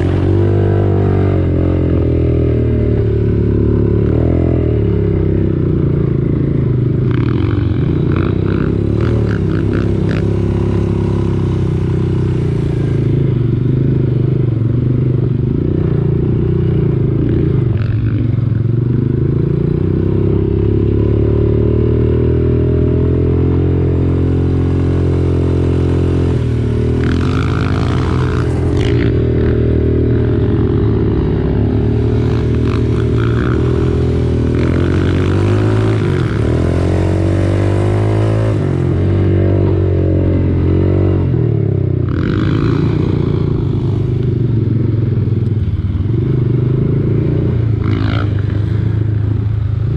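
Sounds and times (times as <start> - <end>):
quad bike engine running: 0.0 - 49.9.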